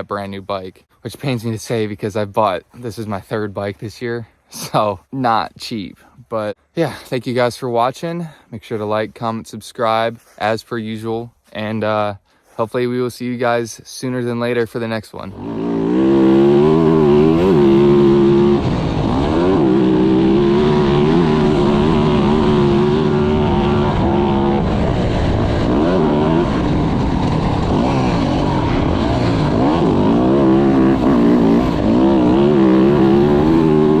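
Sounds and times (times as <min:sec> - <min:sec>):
dirt bike engine running: 0:15.3 - 0:34.0.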